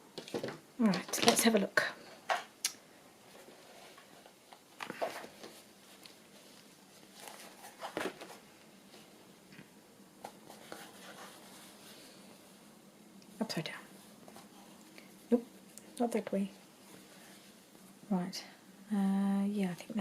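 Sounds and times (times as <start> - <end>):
paper and fabric rustling: 3.2 - 9.2, 10.2 - 12.6.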